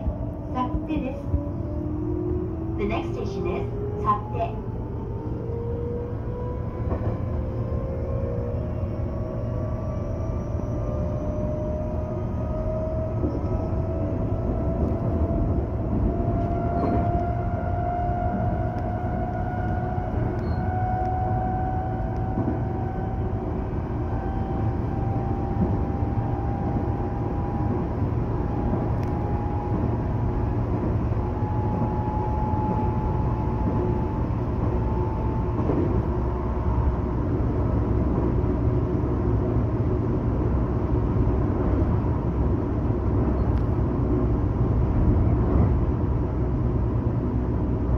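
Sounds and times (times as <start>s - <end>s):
train wheels rumbling: 0.0s - 47.9s.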